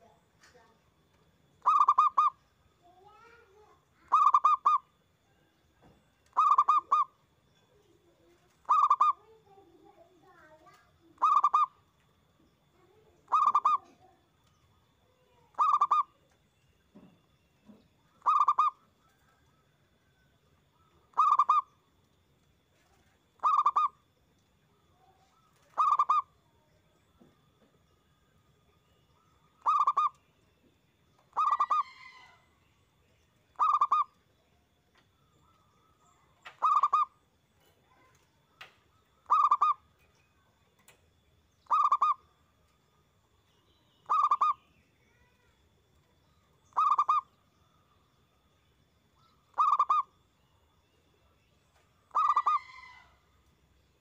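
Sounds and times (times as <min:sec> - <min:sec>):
dove cooing: 0:01.6 - 0:02.4, 0:04.1 - 0:04.8, 0:06.3 - 0:07.1, 0:08.6 - 0:09.2, 0:11.2 - 0:11.7, 0:13.3 - 0:14.1, 0:15.5 - 0:16.1, 0:18.2 - 0:19.6, 0:21.1 - 0:21.7, 0:23.4 - 0:24.0, 0:25.6 - 0:26.3, 0:29.6 - 0:30.2, 0:31.3 - 0:32.3, 0:33.6 - 0:34.1, 0:36.5 - 0:37.2, 0:39.2 - 0:39.8, 0:41.7 - 0:42.2, 0:44.1 - 0:44.6, 0:46.7 - 0:47.2, 0:49.5 - 0:50.1, 0:52.1 - 0:53.1.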